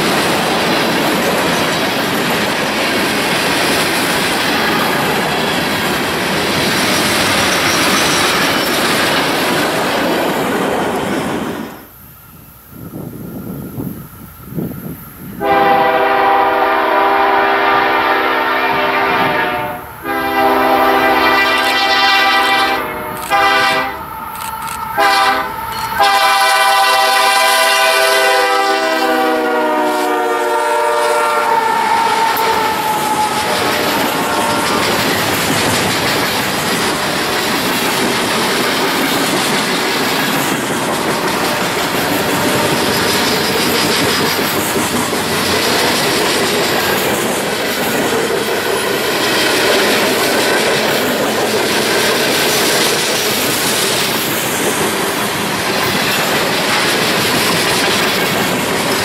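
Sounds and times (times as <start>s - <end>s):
train wheels clattering: 0.0s - 11.7s, 15.4s - 59.0s
train horn chord: 15.4s - 24.1s, 25.0s - 35.0s.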